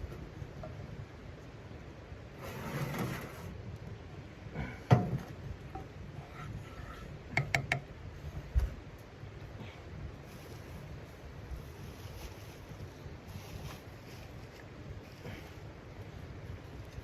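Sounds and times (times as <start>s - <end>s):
scraping rustle: 2.4s - 3.6s, 10.3s - 15.7s.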